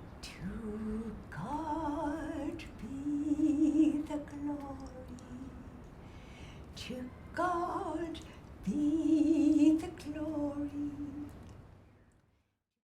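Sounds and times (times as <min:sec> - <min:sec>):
woman humming a slow melody: 0:00.2 - 0:05.8.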